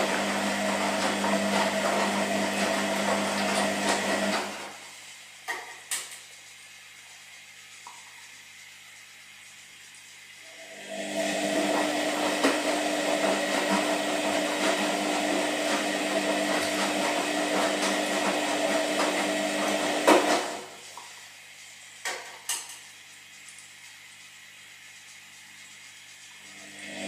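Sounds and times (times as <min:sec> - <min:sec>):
washing machine running: 0:00.0 - 0:27.0.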